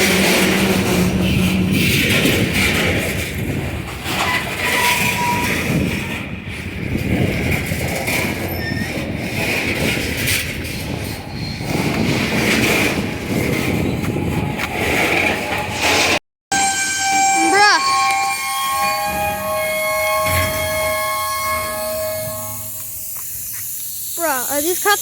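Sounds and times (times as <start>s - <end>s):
freight train wheels rumbling: 0.0s - 25.0s
high wheel squeal: 4.0s - 6.3s, 8.4s - 9.1s, 11.1s - 12.0s, 16.5s - 24.7s.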